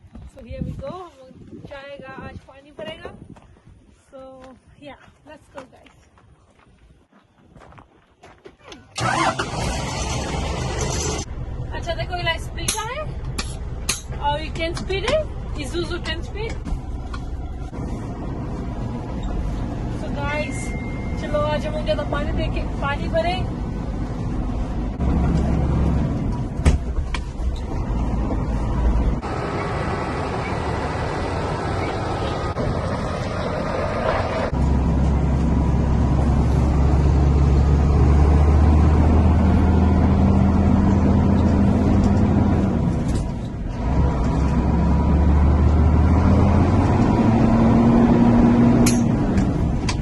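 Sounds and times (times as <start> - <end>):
truck diesel engine running: 9.0 - 20.4, 21.5 - 50.0.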